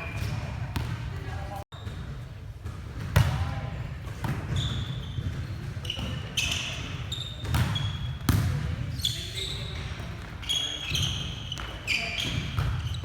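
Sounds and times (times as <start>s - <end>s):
sneakers squeaking on gym floor: 0.0s - 1.0s, 4.5s - 13.0s.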